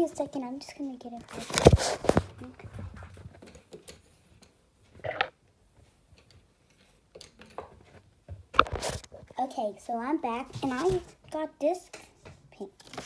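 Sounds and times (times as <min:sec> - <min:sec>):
rustling and small clicks: 0:01.2 - 0:09.4.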